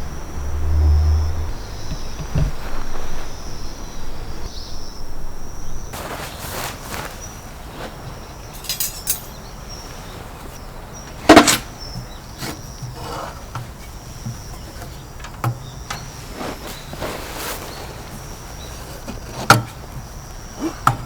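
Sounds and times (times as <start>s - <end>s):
insects chirring: 0.0s - 21.0s
objects knocking and clunking: 8.5s - 9.4s, 11.1s - 16.2s.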